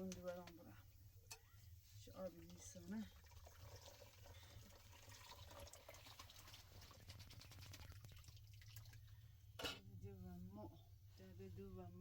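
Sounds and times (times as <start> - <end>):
water dripping: 2.3 - 9.2
low steady hum: 8.1 - 12.0.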